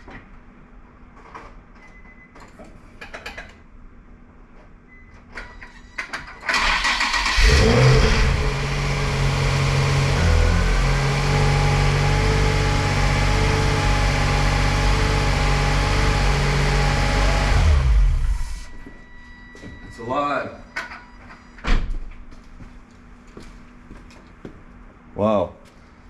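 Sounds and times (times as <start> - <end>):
car engine starting and idling: 6.4 - 18.8.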